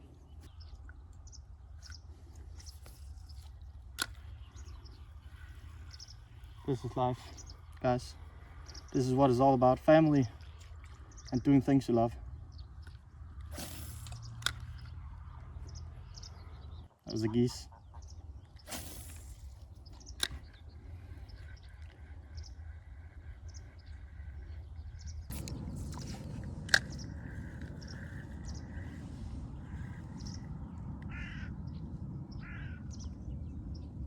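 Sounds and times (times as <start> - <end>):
low steady rumble: 0.0 - 34.0
distant geese honking: 20.3 - 33.2.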